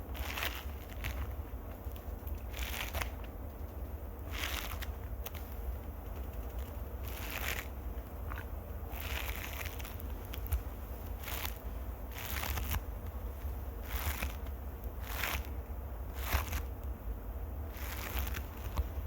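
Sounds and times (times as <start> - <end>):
scratchy swishes: 13.8 - 14.4.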